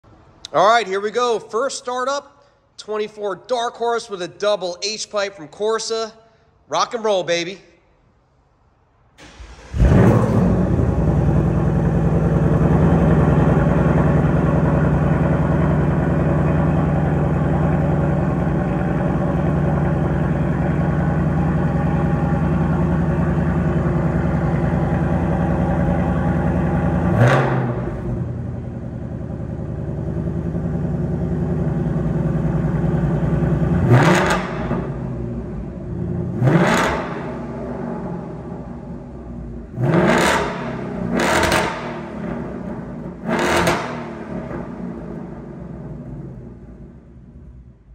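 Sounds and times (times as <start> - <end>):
car engine starting and idling: 8.9 - 47.9
engine revving blip: 39.8 - 42.1.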